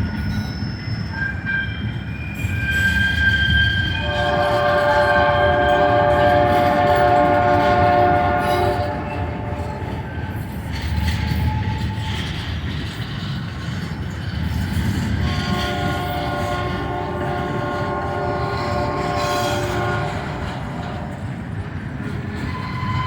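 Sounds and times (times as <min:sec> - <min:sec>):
train rumbling past: 0:00.0 - 0:23.0
train wheel clatter: 0:00.0 - 0:23.0
locomotive air horn: 0:03.2 - 0:10.2, 0:15.2 - 0:21.1.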